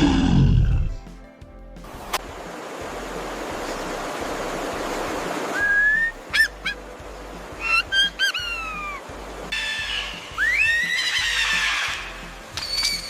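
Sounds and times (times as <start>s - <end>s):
rushing noise: 0.0s - 13.0s
bird calling: 5.4s - 13.0s.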